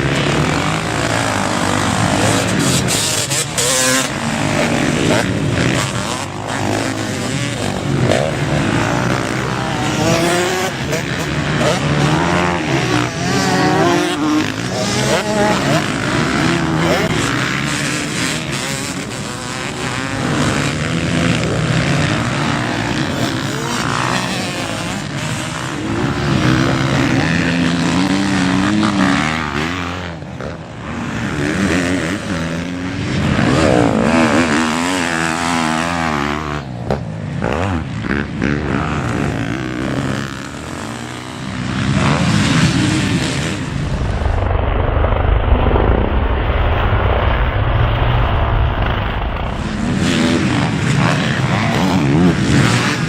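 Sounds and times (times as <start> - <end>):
motocross bike engines revving: 0.0 - 53.0
deep low rumble: 43.5 - 50.8.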